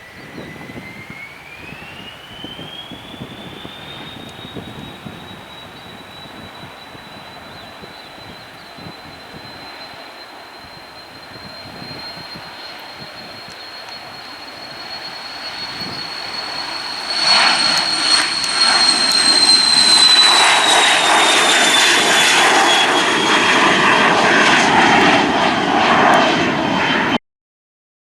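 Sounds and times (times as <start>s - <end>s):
high fan whine: 0.0s - 26.6s
jet roar passing: 0.0s - 27.2s.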